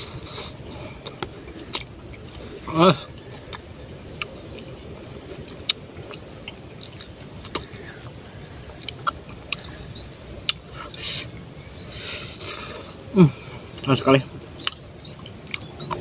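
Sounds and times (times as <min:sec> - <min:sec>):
high drone of insects: 0:00.0 - 0:16.0
person chewing: 0:00.0 - 0:16.0
mouth clicks and smacks: 0:08.7 - 0:11.4, 0:14.6 - 0:16.0.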